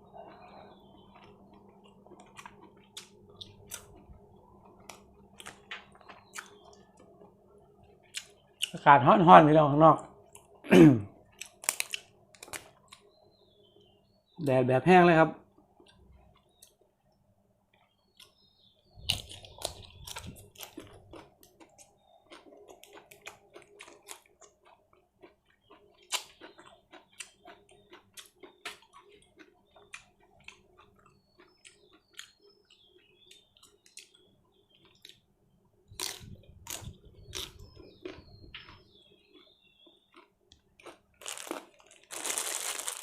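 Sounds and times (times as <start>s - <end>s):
faint steady hum: 0.0s - 26.2s
person chewing wetly: 0.3s - 8.8s, 11.2s - 13.1s, 19.0s - 35.2s, 36.0s - 43.0s.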